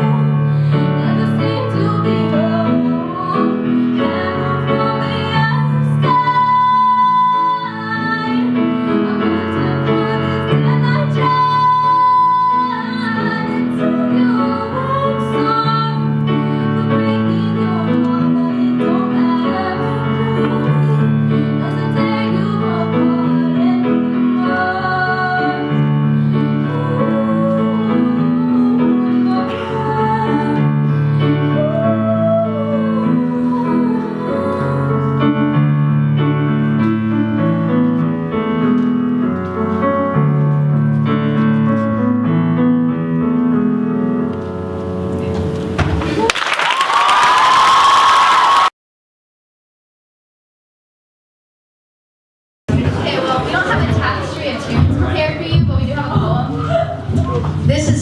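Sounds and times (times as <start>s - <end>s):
woman singing slow song: 0.0s - 25.8s, 26.5s - 35.4s
piano accompaniment: 0.0s - 48.0s, 52.7s - 58.0s.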